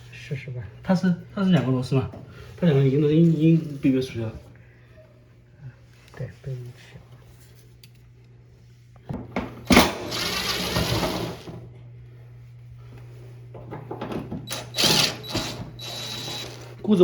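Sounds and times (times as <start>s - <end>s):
loud scraping and rustling: 10.0s - 11.5s.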